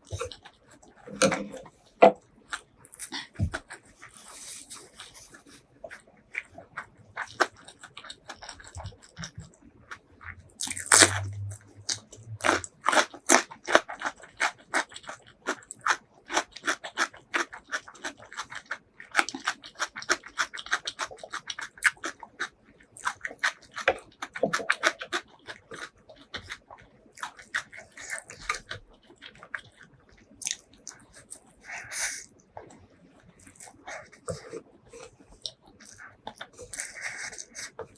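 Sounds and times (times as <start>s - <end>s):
person chewing food: 0.0s - 37.9s.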